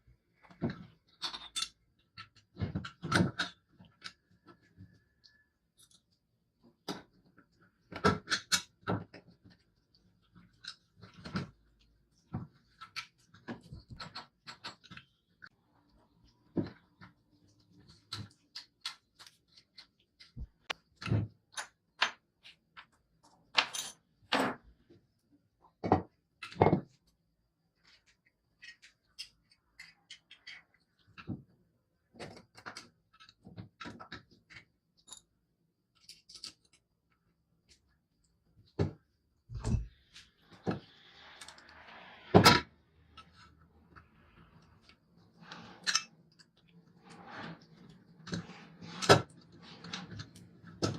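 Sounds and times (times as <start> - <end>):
tools and hard parts clinking: 45.8 - 46.1.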